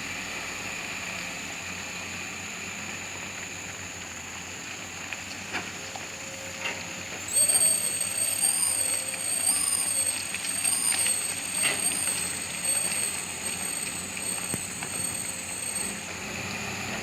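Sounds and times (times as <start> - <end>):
high-pitched whine: 7.3 - 16.6
excavator machine hum: 7.3 - 17.0.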